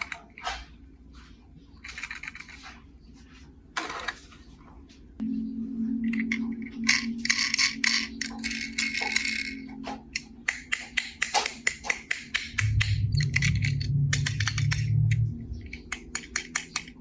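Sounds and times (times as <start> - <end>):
toy cars clicking and rattling: 1.8 - 2.6, 15.9 - 17.0
low steady tone: 5.2 - 17.0.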